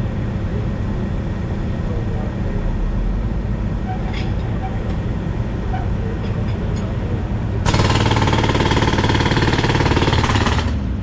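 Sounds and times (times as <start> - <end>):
diesel engine running: 0.0 - 11.0
concrete breaker hammering: 7.7 - 10.9.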